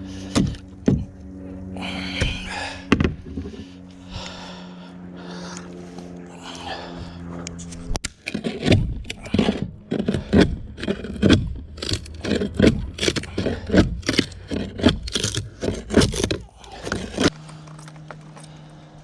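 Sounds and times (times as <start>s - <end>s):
steady low hum: 0.0s - 19.0s
scraping on boat hull: 8.2s - 17.3s.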